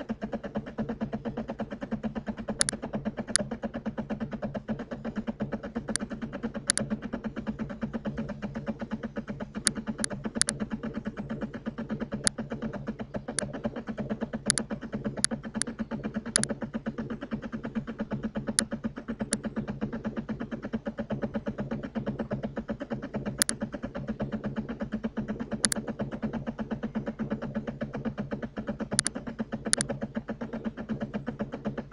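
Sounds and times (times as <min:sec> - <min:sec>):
low buzzing hum: 0:00.0 - 0:31.9
computer mouse clicks: 0:02.5 - 0:03.5, 0:05.9 - 0:06.9, 0:09.6 - 0:10.7, 0:13.3 - 0:13.5, 0:14.4 - 0:16.5, 0:23.3 - 0:23.6, 0:25.5 - 0:25.9, 0:28.9 - 0:30.0.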